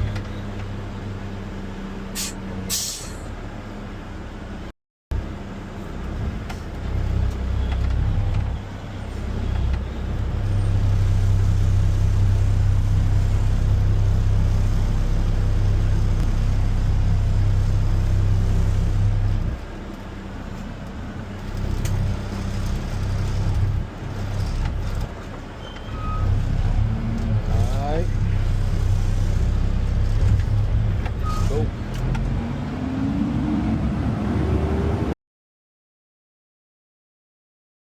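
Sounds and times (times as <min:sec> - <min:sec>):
garbage truck diesel engine: 0:00.0 - 0:35.1
brief squeal: 0:25.6 - 0:26.4, 0:31.2 - 0:31.7.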